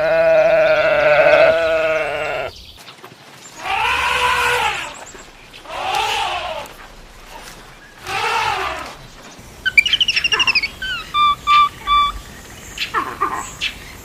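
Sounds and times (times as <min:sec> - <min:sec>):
bird-like chirps: 0:01.6 - 0:14.0
quick falling calls: 0:03.2 - 0:13.8
drawn-out rising and falling call: 0:03.3 - 0:14.0.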